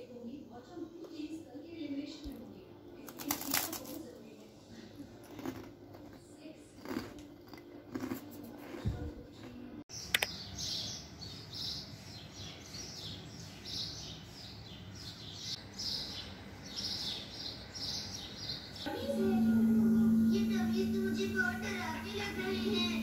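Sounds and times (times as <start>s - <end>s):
outdoor background noise: 0.0s - 23.0s
small birds chirping: 9.9s - 21.3s
sharp click: 10.1s - 10.4s.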